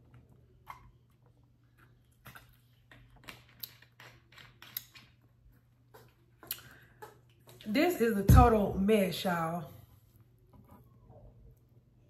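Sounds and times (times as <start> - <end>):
chewing and lip smacks: 0.0 - 7.6
low steady hum: 0.0 - 12.0.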